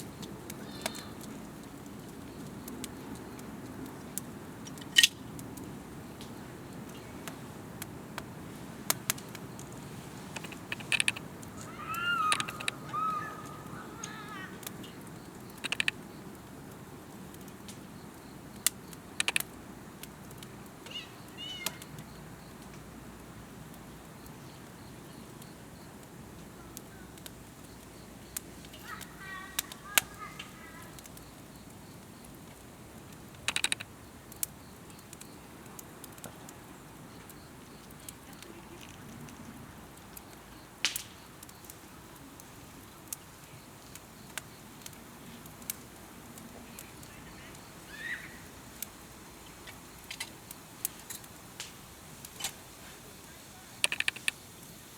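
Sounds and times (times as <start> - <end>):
campfire crackling and popping: 0.0 - 54.9
bird chirping: 10.4 - 16.4.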